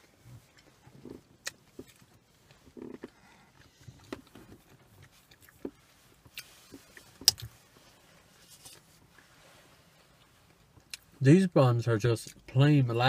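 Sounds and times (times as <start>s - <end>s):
chewing and mouth smacks: 0.4s - 7.6s.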